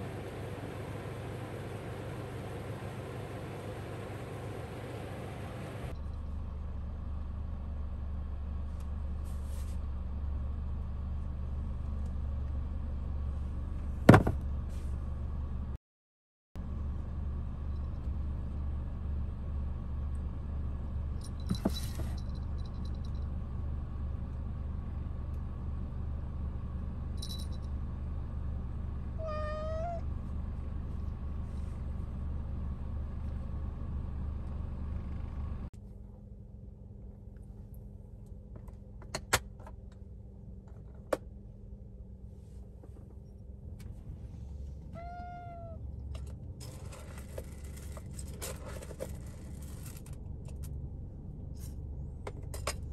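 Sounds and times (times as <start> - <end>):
cat meowing: 29.2 - 30.0, 44.9 - 45.8.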